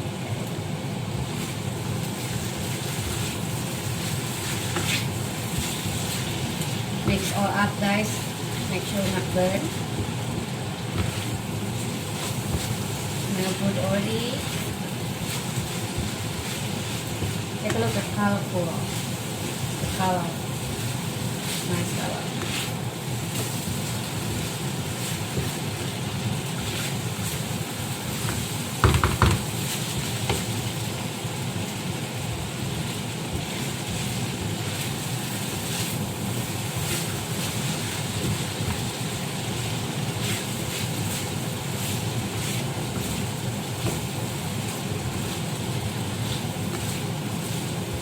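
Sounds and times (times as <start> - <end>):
filling sizzling in a pan: 0.0 - 48.0
spatula clicking and clattering on pan: 28.3 - 29.5.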